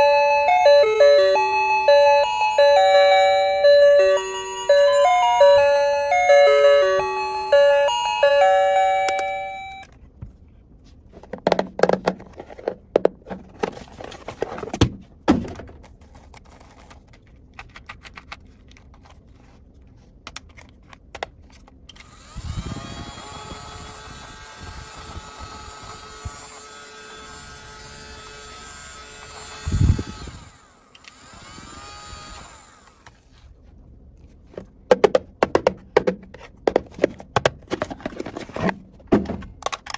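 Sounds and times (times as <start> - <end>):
electronic chime tune: 0.0 - 9.9.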